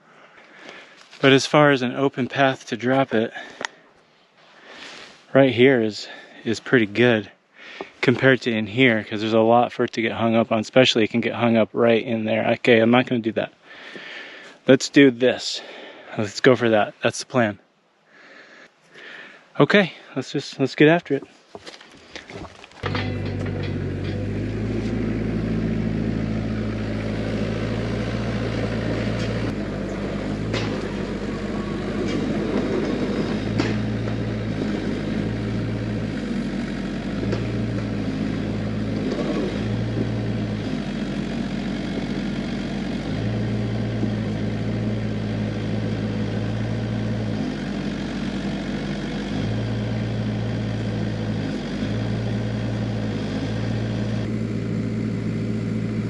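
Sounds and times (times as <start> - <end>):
excavator diesel engine running: 22.8 - 56.0.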